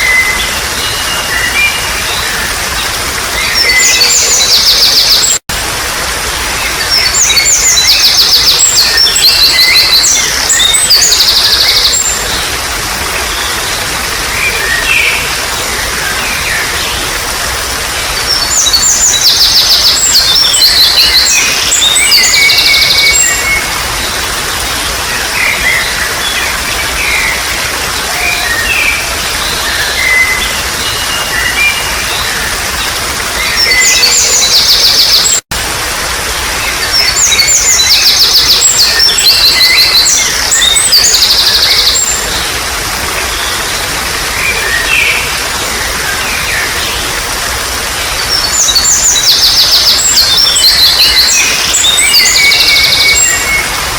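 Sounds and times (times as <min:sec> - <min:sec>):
water trickling: 0:00.0 - 0:53.9
songbird singing: 0:06.6 - 0:17.2, 0:17.9 - 0:24.3, 0:36.6 - 0:42.6, 0:48.0 - 0:53.9.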